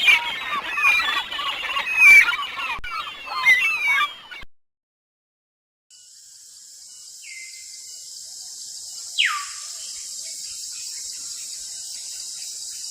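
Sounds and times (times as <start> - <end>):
downward gliding whistled calls: 0.0 - 4.4, 7.0 - 12.9
high-pitched insect chorus: 5.9 - 12.9.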